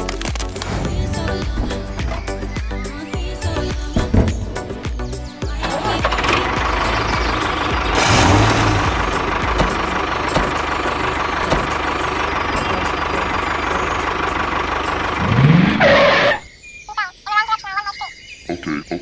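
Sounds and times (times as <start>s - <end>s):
small engine running: 5.6s - 16.4s.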